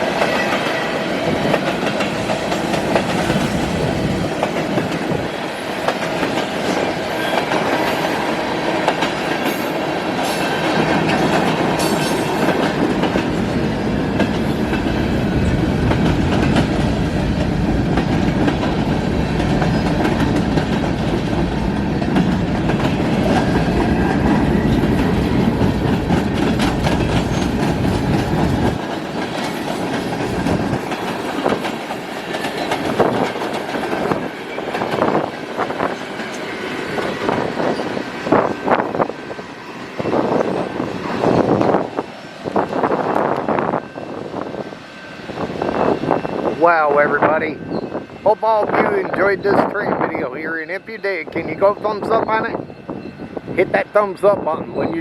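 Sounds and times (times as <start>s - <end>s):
wheels clicking over rail joints: 0.0s - 39.2s
freight train rumbling past: 0.0s - 55.0s.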